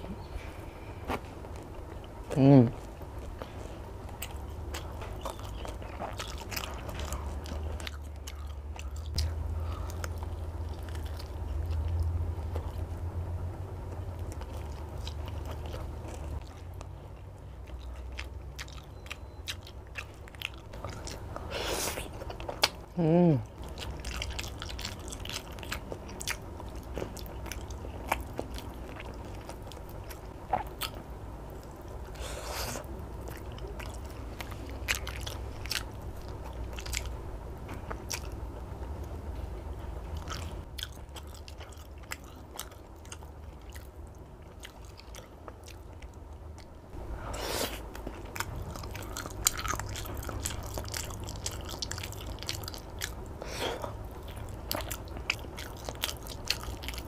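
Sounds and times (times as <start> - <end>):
chewing with mouth clicks: 1.1 - 13.1, 13.9 - 22.8, 23.5 - 39.2, 40.1 - 46.8, 47.6 - 57.0.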